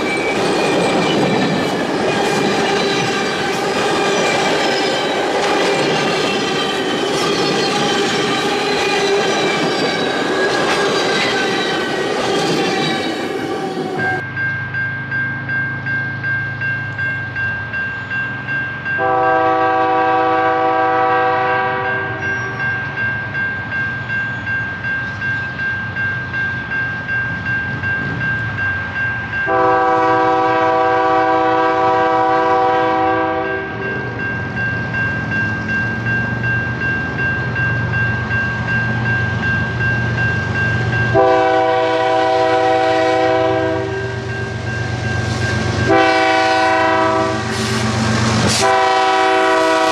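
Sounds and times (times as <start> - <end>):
train clattering past: 0.0 - 49.9
locomotive air horn blasts: 19.0 - 22.4, 29.5 - 33.9, 41.1 - 44.3, 45.9 - 49.9.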